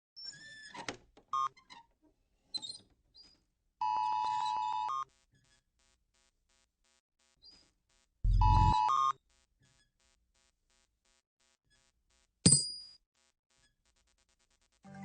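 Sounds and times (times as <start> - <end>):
synthesized blips and chimes: 8.3 - 8.8.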